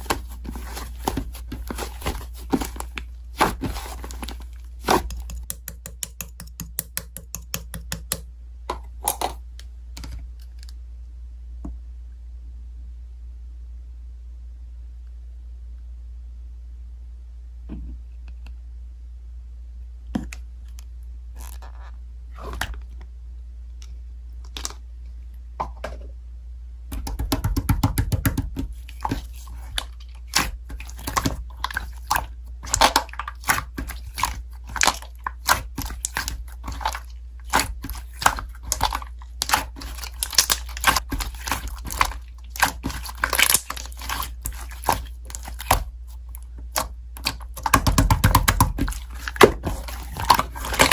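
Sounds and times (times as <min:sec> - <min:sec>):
slime squished by hand: 0:00.0 - 0:08.1, 0:26.9 - 0:50.9
steady low hum: 0:00.0 - 0:50.9.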